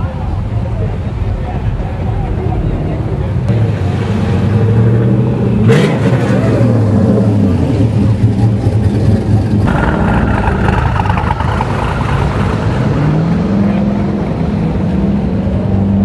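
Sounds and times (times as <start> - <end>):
sports car engines revving: 0.2 - 16.0.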